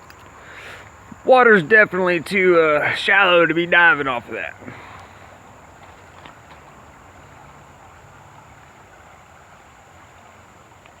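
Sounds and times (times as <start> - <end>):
thin steady high tone: 0.9 - 5.3.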